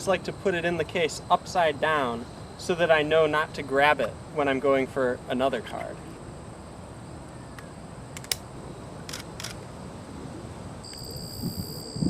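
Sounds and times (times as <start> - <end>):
camera shutter clicks: 8.2 - 8.4, 9.1 - 9.6
steady high-pitched tone: 10.8 - 12.0.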